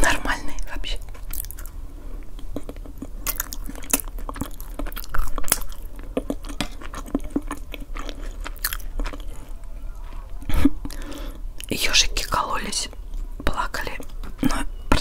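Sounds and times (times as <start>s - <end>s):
close chewing with mouth clicks: 0.9s - 14.7s.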